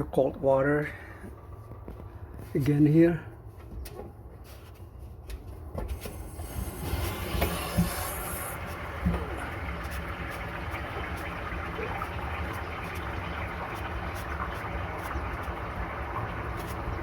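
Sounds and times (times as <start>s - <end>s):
water rushing into tank: 6.0s - 17.0s.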